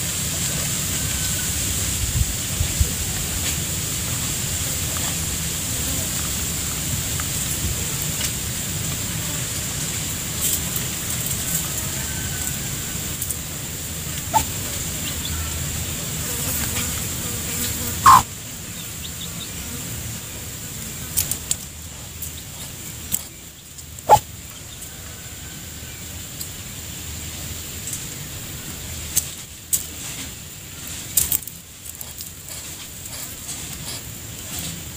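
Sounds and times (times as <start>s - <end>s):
steady background noise: 0.0s - 34.9s
chickens clucking: 14.1s - 19.6s, 24.1s - 24.9s.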